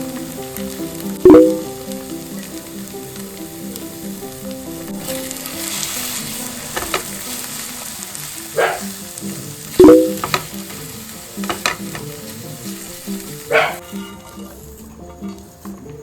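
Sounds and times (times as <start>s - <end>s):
eggs sizzling in a frying pan: 0.0s - 16.0s
utensil scraping a pan: 13.6s - 15.5s.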